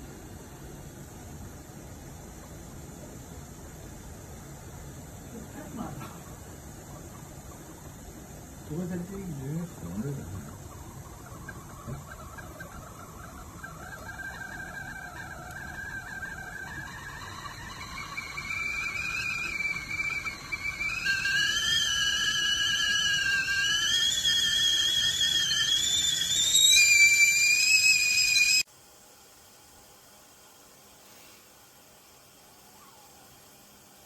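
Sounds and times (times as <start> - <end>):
tea kettle whistling: 5.3 - 28.7.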